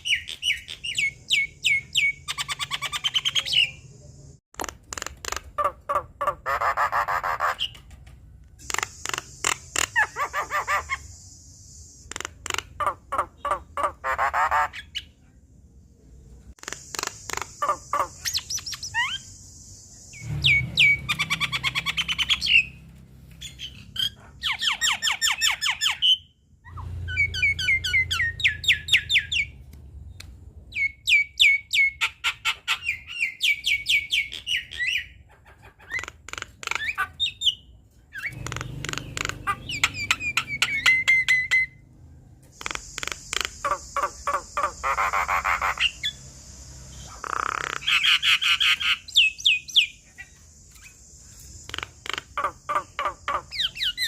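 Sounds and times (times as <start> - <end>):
myna singing clicks and whistles: 8.6 - 12.8, 42.6 - 54.0.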